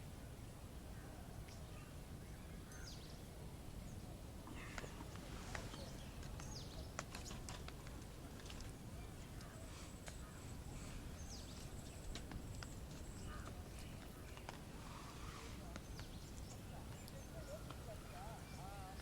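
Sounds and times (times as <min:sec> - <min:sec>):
campfire crackling: 0:04.2 - 0:19.0.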